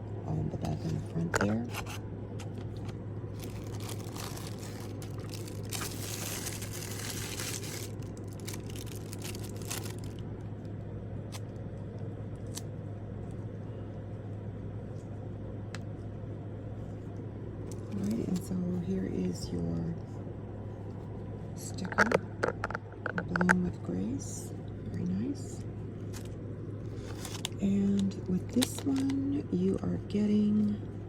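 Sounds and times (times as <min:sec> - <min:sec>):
low steady hum: 0:00.0 - 0:31.0
packaging crinkling and rustling: 0:00.7 - 0:10.3, 0:26.0 - 0:29.2.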